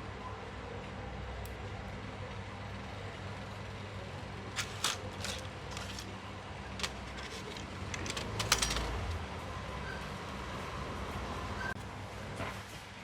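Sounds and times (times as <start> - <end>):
small metal parts clicking: 4.6 - 6.1, 6.7 - 9.1.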